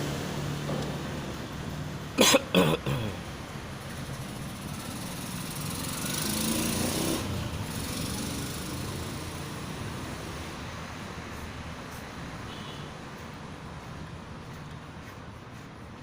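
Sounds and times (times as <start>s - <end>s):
small engine running: 4.2s - 9.8s.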